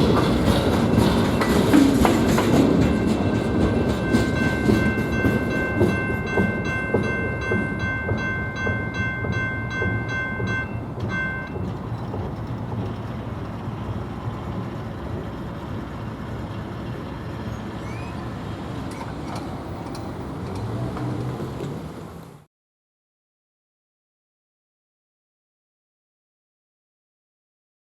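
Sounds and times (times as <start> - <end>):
railroad bell ringing: 0.0 - 20.8
freight train rumble and wheel clatter: 0.0 - 22.5.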